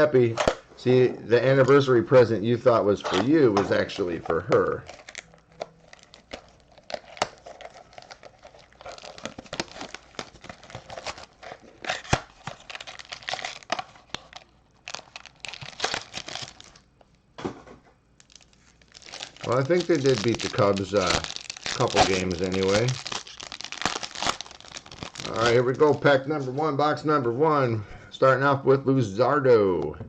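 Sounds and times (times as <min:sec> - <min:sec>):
plastic wrapping crinkling and tearing: 0:03.1 - 0:16.9, 0:18.2 - 0:26.1.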